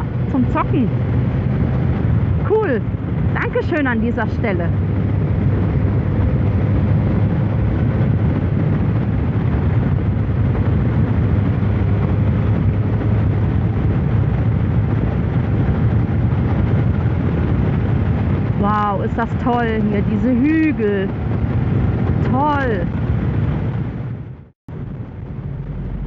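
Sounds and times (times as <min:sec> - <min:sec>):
motorcycle engine humming: 0:00.0 - 0:26.0
wind and road noise: 0:00.0 - 0:26.0.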